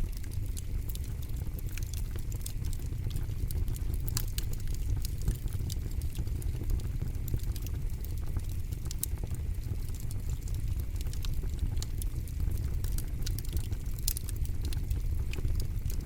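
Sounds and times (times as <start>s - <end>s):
campfire crackling and popping: 0.0s - 16.0s
low fire rumble: 0.0s - 16.0s.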